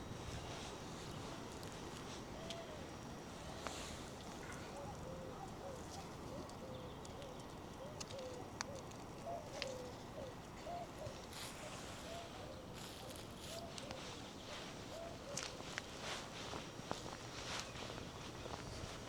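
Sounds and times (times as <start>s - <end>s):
bird calling: 2.1s - 19.0s
footsteps on ground: 12.7s - 19.0s.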